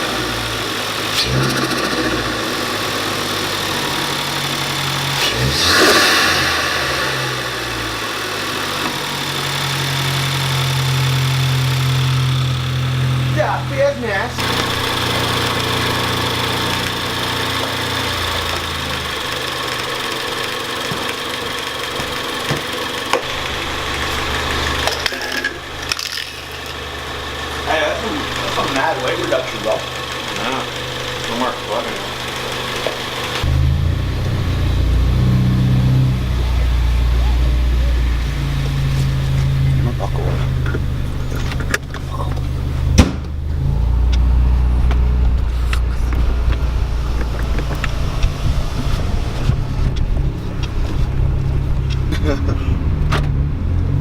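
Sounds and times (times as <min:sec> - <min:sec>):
car engine idling: 0:00.0 - 0:54.0
sharp knock: 0:43.0 - 0:43.3.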